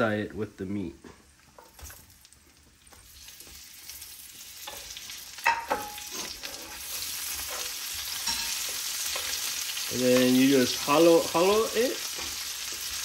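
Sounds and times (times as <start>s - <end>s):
vegetables sizzling in fat: 0.6s - 13.0s
wooden spatula scraping skillet: 4.6s - 13.0s.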